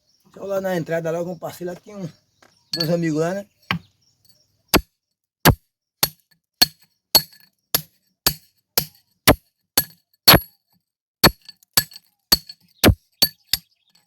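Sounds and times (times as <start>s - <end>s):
hammer striking steel tool: 5.5s - 10.5s, 11.2s - 13.7s.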